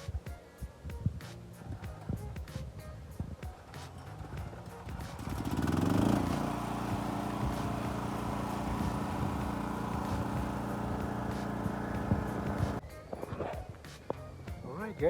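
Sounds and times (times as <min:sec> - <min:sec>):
motor revving: 0:04.8 - 0:12.8.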